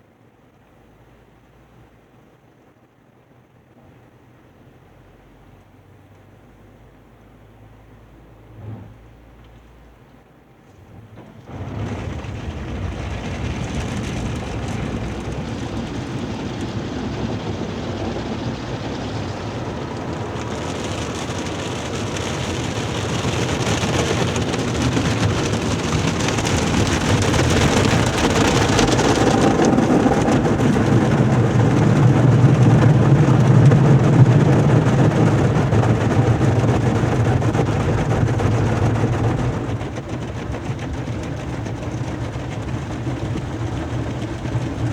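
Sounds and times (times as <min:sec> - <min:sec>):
low machinery hum: 0:06.8 - 0:44.9
water spray rushing on car: 0:10.8 - 0:44.9.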